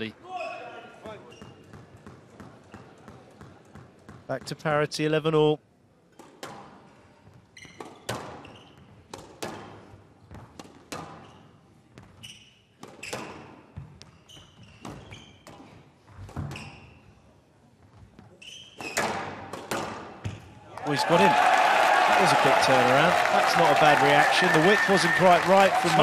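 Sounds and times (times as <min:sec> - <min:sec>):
shoes squeaking on court floor: 0:00.4 - 0:04.3, 0:07.4 - 0:19.4
squash ball hits: 0:09.1 - 0:09.8, 0:10.4 - 0:11.3, 0:18.8 - 0:20.5.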